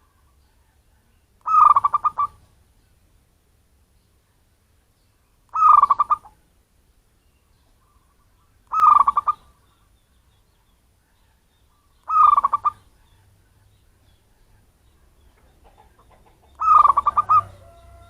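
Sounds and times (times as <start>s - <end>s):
dove cooing: 1.4s - 2.4s, 5.5s - 6.3s, 8.7s - 9.6s, 11.7s - 13.3s, 15.3s - 18.0s.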